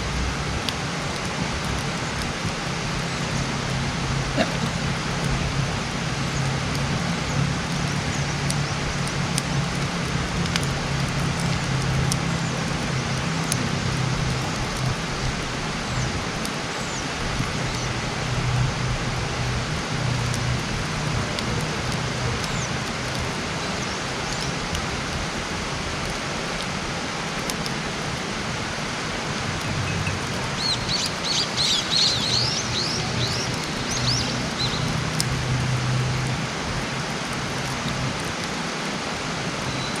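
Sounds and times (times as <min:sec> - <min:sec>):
campfire crackling and popping: 0:00.0 - 0:40.0
small bird chirping: 0:29.6 - 0:35.0.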